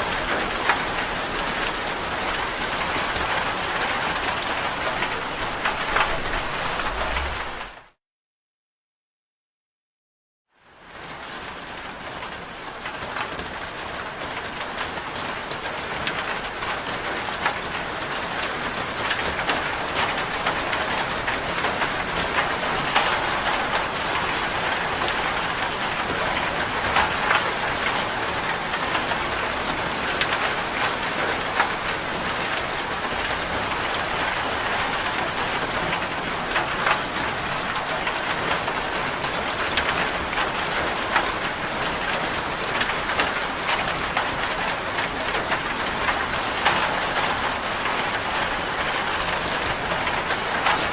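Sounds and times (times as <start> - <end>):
rain falling: 0.0 - 8.0, 10.6 - 50.9.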